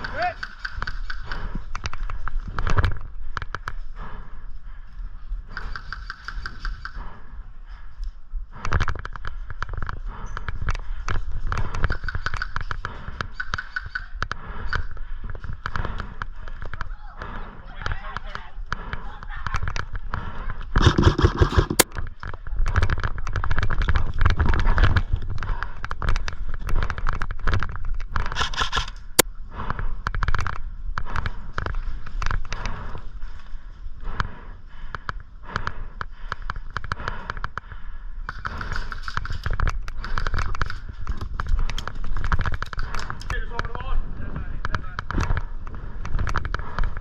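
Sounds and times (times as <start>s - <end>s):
airsoft guns firing: 20.8s - 22.0s.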